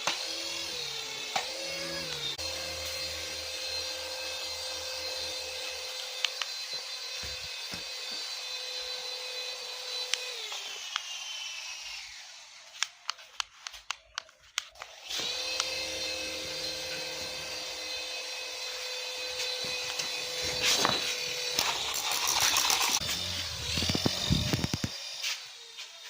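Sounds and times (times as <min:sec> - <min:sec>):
toy helicopter motor whining: 0:00.0 - 0:26.0
sharp clicks: 0:12.7 - 0:15.8.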